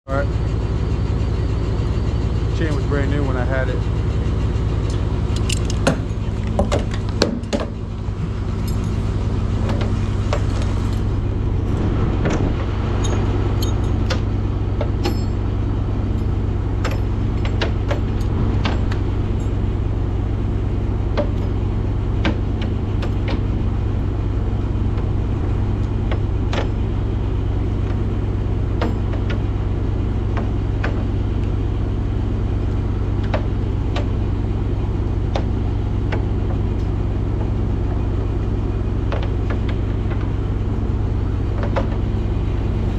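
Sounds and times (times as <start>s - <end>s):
vehicle engine running: 0.1s - 42.9s
light clicks and rattles: 4.8s - 7.7s.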